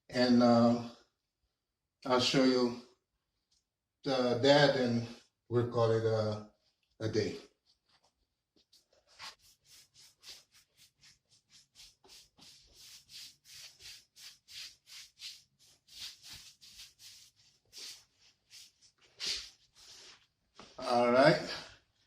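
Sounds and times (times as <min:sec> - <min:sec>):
hand rasping over plaster wall: 0:08.7 - 0:20.3.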